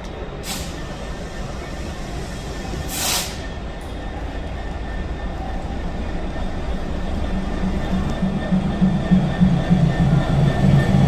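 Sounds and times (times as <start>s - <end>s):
train wheels rumbling on rail: 0.0s - 11.0s
loud burst of hiss: 0.4s - 3.5s.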